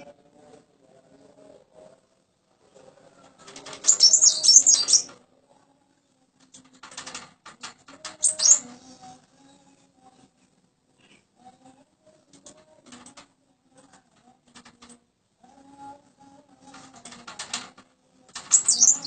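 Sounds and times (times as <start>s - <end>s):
bird twittering: 3.9s - 5.1s, 8.2s - 8.6s, 18.5s - 19.0s.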